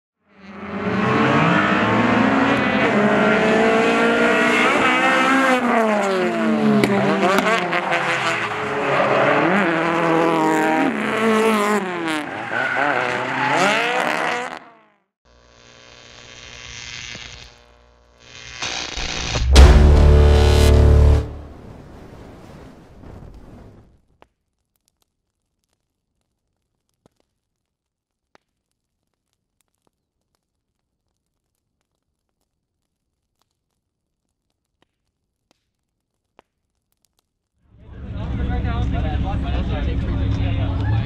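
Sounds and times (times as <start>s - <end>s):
car engines revving hard: 0.4s - 14.8s
tyre squeal: 12.1s - 14.3s.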